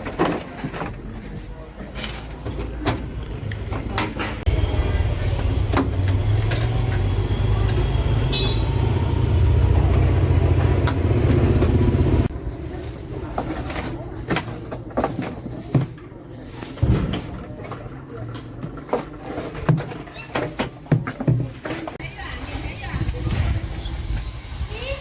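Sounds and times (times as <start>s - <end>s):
engine running with low hum: 4.5s - 12.9s.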